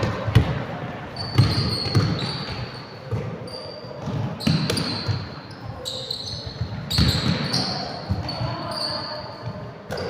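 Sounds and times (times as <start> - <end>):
basketball bouncing: 0.0 - 3.4, 4.0 - 5.3, 6.6 - 8.4
sneakers squeaking on floor: 0.0 - 10.0.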